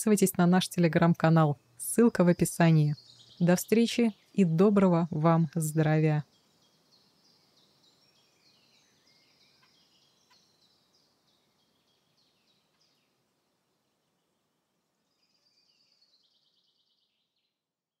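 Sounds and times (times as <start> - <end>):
faint birdsong chirps: 0.0 - 17.7
bird trill: 2.1 - 13.1.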